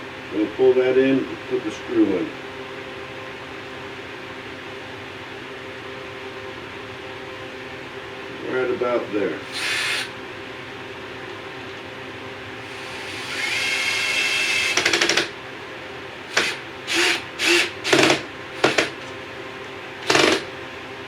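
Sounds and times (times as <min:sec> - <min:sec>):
power drill driving a screw: 0:09.4 - 0:10.1, 0:12.6 - 0:15.3, 0:16.3 - 0:19.1, 0:20.0 - 0:20.5
drill rapid clicking: 0:09.4 - 0:10.2, 0:12.6 - 0:15.4, 0:16.3 - 0:19.1, 0:20.0 - 0:20.5.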